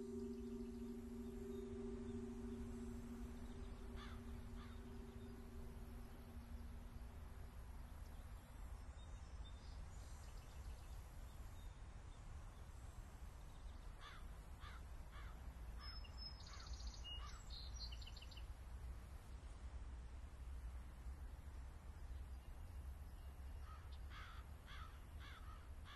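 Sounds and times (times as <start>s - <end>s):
faint birds calling: 0.0s - 7.1s
low steady rumble: 0.0s - 13.8s.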